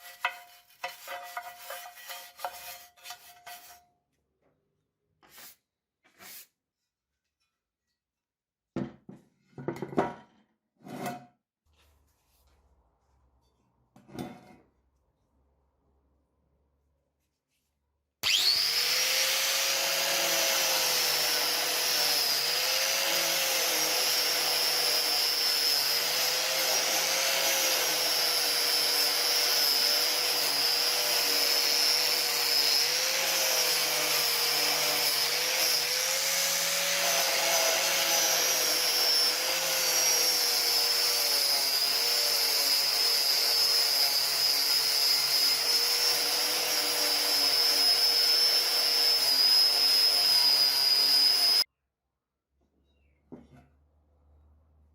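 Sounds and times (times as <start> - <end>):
power tool whining on metal: 18.2 - 51.7.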